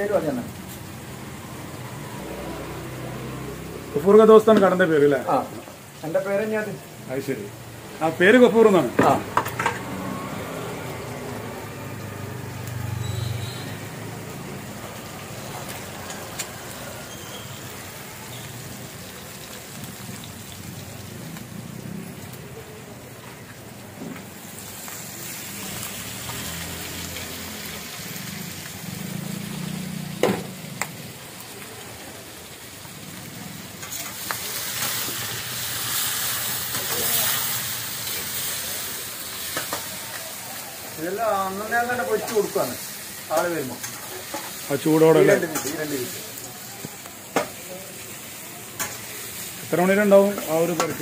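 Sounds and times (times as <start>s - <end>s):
chicken sizzling in a wok: 0.0s - 51.0s
ladle stirring in a pan: 42.2s - 46.2s.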